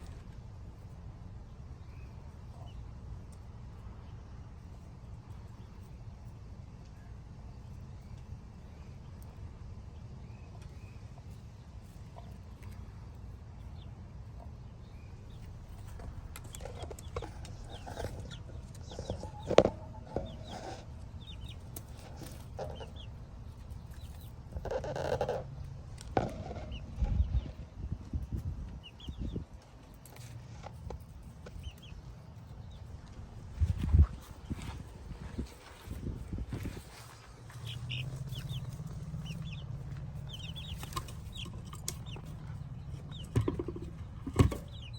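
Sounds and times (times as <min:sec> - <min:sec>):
low steady rumble: 0:00.0 - 0:44.9
hens clucking: 0:12.0 - 0:44.9.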